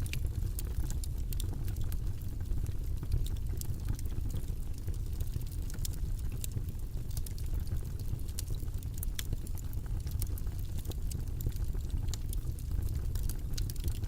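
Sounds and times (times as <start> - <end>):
low rumbling white noise: 0.0 - 14.0.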